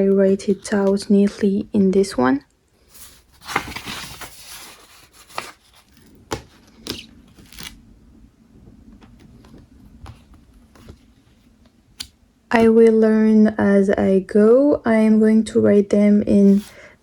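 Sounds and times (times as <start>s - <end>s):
notebook pages rustling: 0.0s - 2.1s, 2.8s - 7.9s, 8.6s - 12.1s.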